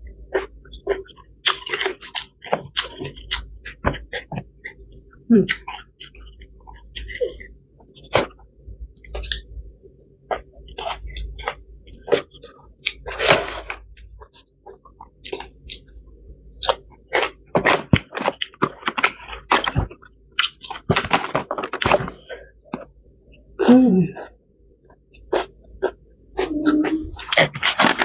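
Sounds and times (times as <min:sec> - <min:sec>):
person chewing and crunching food: 0:00.0 - 0:09.6, 0:10.2 - 0:28.0.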